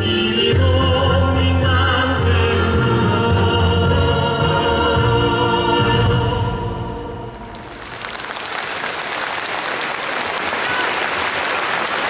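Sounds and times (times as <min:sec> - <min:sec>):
choir singing with accompaniment: 0:00.0 - 0:07.6
applause: 0:07.3 - 0:12.0.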